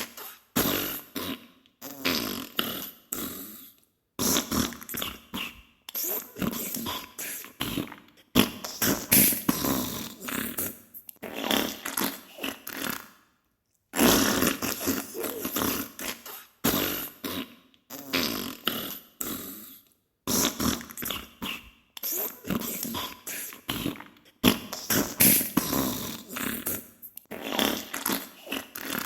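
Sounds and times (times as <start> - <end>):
wet fart sounds: 0.0 - 2.9, 4.2 - 7.0, 7.6 - 13.2, 13.9 - 19.0, 20.3 - 22.8, 23.7 - 29.0.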